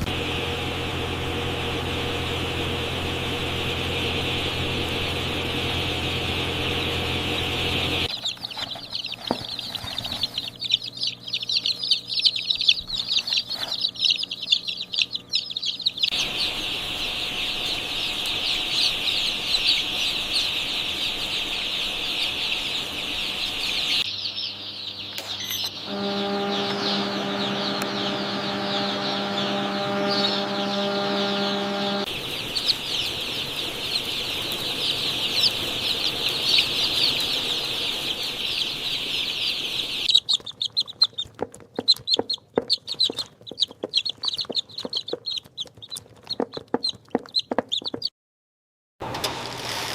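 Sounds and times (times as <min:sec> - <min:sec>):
steady machine hum: 0:00.0 - 0:08.2, 0:10.4 - 0:40.2
chicks peeping: 0:00.9 - 0:48.1.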